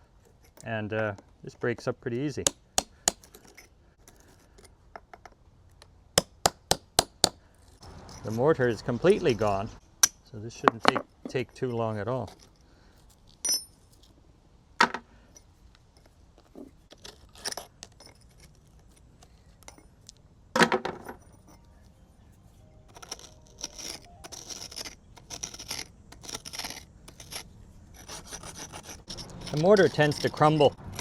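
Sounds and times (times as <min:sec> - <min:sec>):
mortar scraping and rasping: 0:22.9 - 0:31.0.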